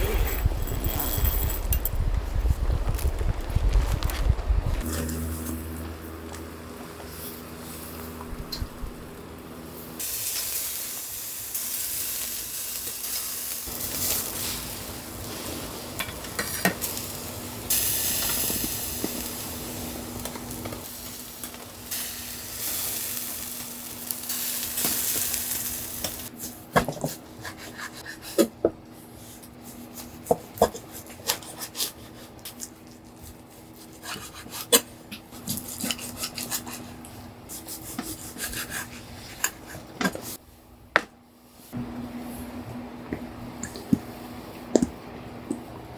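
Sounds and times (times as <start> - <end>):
food sizzling in a pan: 10.0 - 26.3.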